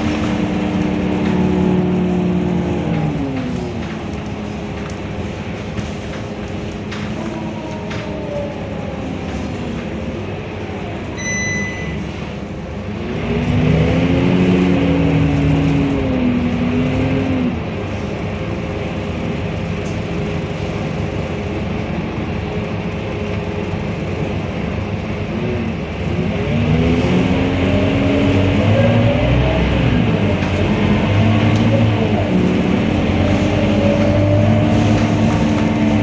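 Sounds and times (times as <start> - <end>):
bus diesel engine accelerating: 0.0 - 36.0
short high electronic beep: 11.2 - 12.1.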